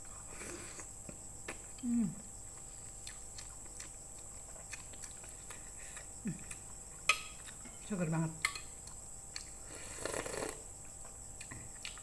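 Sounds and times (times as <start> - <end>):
chewing noodles: 2.5 - 7.6.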